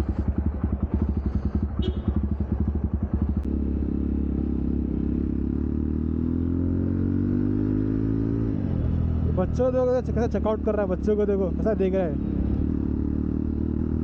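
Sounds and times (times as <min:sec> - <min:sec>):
motorcycle exhaust thumping: 0:00.0 - 0:03.6.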